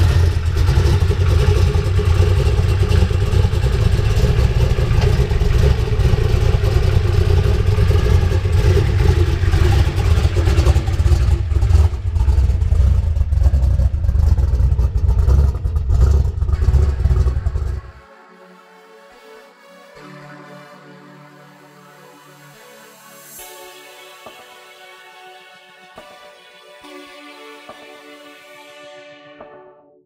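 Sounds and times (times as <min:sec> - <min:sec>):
v-eight engine rumbling: 0:00.0 - 0:18.0.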